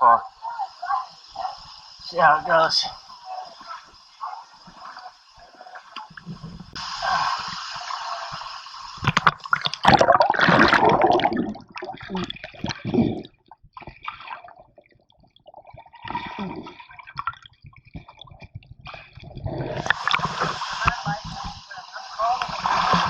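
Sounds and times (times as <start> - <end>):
stream water splashing: 4.2 - 12.8, 19.8 - 23.0.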